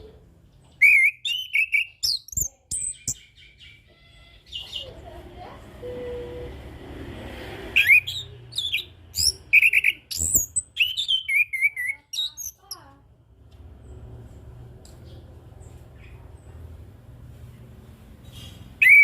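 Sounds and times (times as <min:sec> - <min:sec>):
thrush singing whistled notes: 0:00.8 - 0:03.2, 0:07.8 - 0:12.6, 0:18.8 - 0:19.0.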